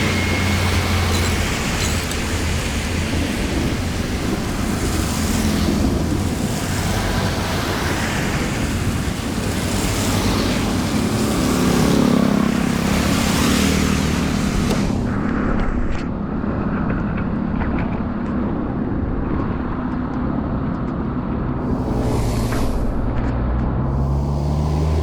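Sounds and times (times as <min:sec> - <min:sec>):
floodwater rushing down a drain: 0:00.0 - 0:15.1
low rumble: 0:21.4 - 0:25.0.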